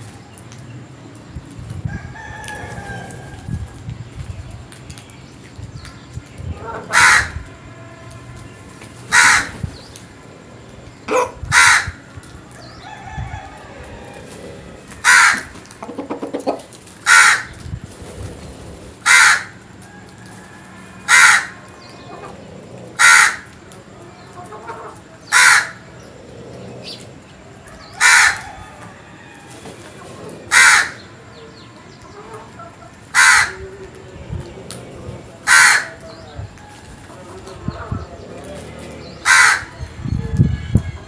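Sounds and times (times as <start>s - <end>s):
crow cawing: 6.9s - 7.4s, 9.1s - 9.6s, 11.1s - 12.0s, 15.0s - 15.5s, 17.0s - 17.5s, 19.0s - 19.6s, 21.0s - 22.3s, 23.0s - 23.5s, 25.3s - 25.9s, 28.0s - 28.5s, 30.5s - 31.1s, 33.1s - 33.6s, 35.4s - 36.0s, 39.2s - 39.8s.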